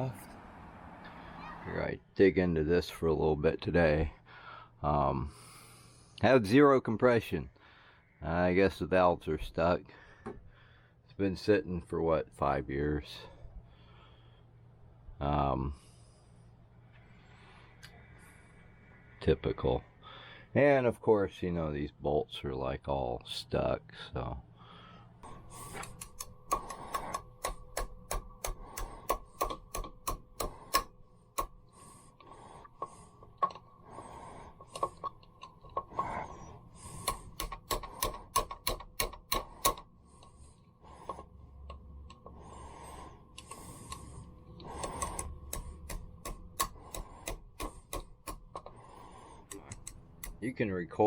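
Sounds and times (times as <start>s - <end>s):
ratchet wrench clicking: 25.7s - 31.7s, 36.8s - 40.3s, 43.4s - 48.7s, 49.4s - 50.4s.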